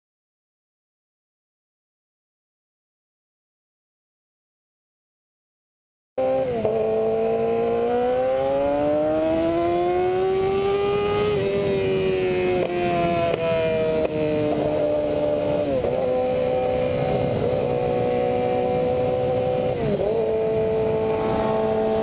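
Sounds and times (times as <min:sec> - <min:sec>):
motorcycle engine accelerating hard: 0:06.2 - 0:22.0.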